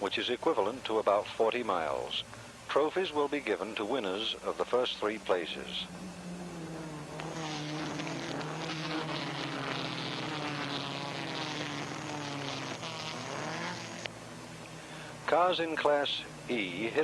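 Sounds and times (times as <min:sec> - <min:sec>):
racing car engine droning: 0:04.1 - 0:17.0.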